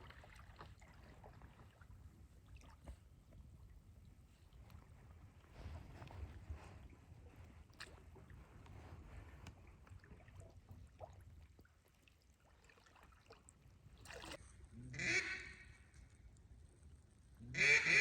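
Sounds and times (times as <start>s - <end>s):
duck quacking: 17.5s - 18.0s.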